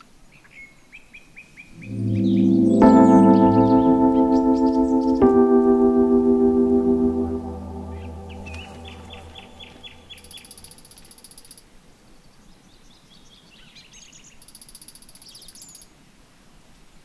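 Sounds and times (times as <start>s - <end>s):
soft music: 1.8s - 10.5s.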